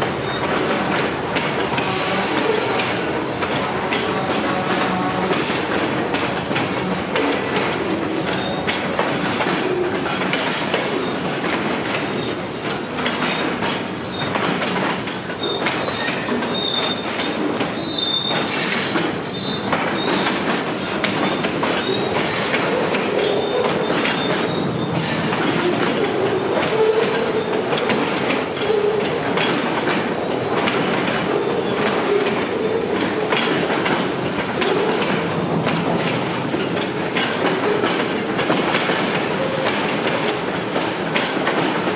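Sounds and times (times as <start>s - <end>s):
train wheels clicking over rail joints: 0.0s - 41.9s
wheel squeal: 1.8s - 33.7s.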